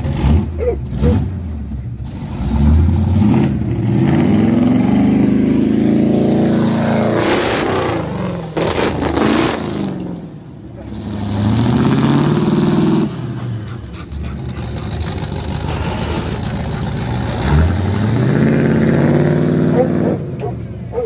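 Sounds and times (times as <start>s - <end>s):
pickup truck engine revving: 0.0s - 21.0s.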